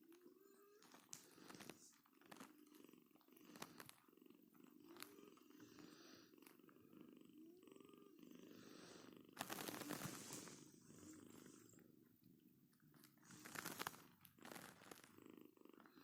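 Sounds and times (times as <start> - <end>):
cat purring: 0.0 - 16.0
faint clicks: 0.1 - 4.0.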